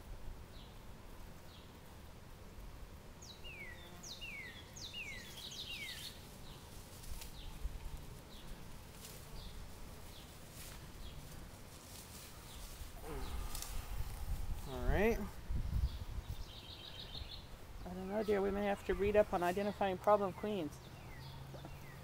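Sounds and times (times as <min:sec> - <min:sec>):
outdoor background: 0:00.0 - 0:22.0
bird chirping: 0:03.2 - 0:08.6, 0:14.6 - 0:22.0.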